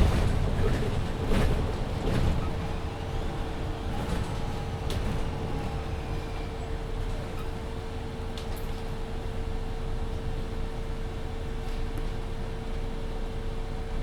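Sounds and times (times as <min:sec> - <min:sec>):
bus engine rumbling: 0:00.0 - 0:13.9.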